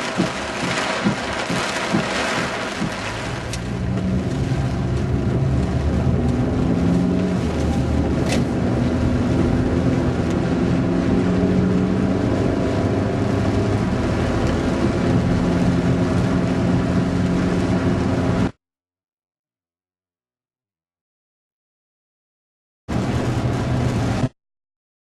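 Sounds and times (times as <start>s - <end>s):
heavy rain: 0.0s - 18.6s, 22.9s - 24.3s.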